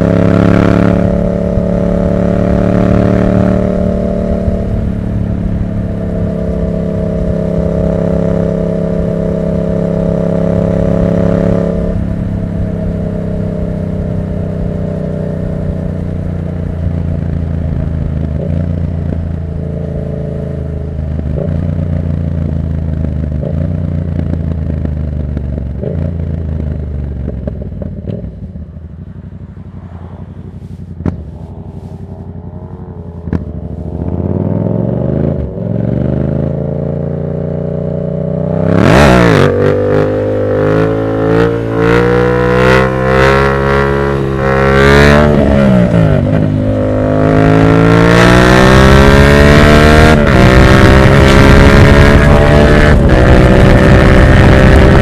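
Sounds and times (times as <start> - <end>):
exhaust crack: 0.0 - 36.8
motorcycle engine: 0.0 - 55.0.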